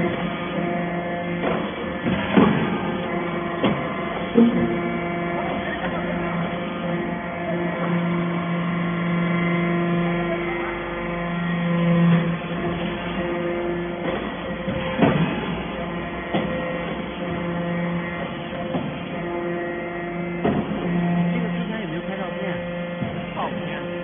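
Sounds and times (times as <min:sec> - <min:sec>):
baler machine hum: 0:00.0 - 0:24.0
sharp metallic knocks: 0:01.4 - 0:06.0.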